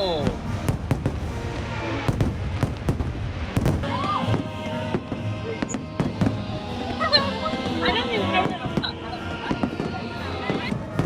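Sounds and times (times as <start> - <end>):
firework bangs and pops: 0.0 - 7.8
music over loudspeakers: 0.0 - 11.0.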